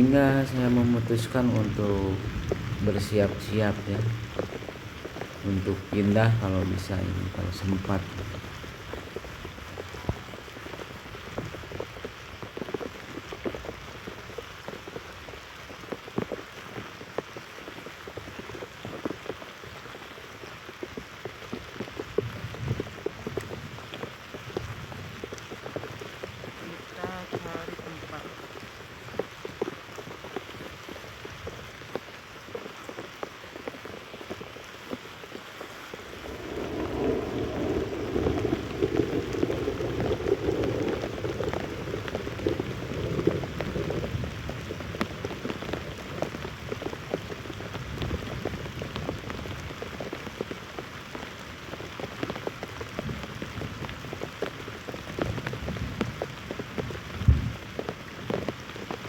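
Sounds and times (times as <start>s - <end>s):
thunder rumble: 0.0s - 11.8s, 35.6s - 49.7s, 55.2s - 57.8s
heavy rain pattering: 0.0s - 59.0s.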